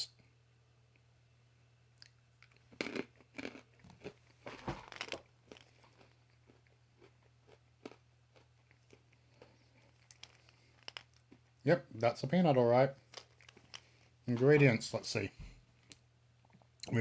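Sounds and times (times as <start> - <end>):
crunching and chewing peanut: 1.9 - 11.6, 12.9 - 14.2.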